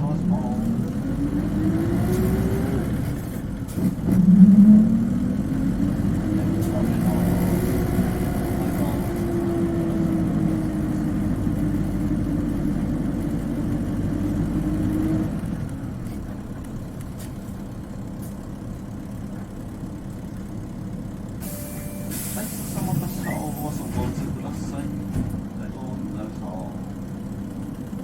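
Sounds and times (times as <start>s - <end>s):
bus engine whining: 0.0s - 28.0s
air hiss: 21.4s - 22.9s.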